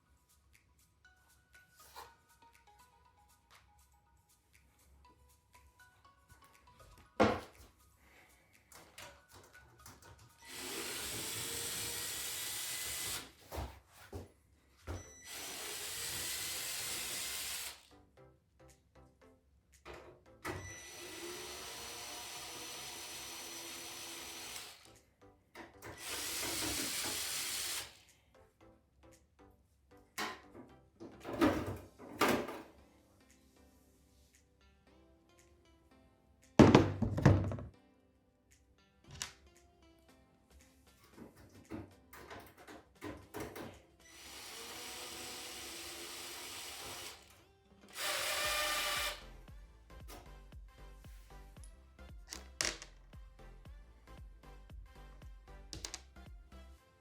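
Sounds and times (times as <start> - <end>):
small motorised tool running: 10.4 - 13.3, 15.2 - 17.8, 20.6 - 24.9, 26.0 - 28.0.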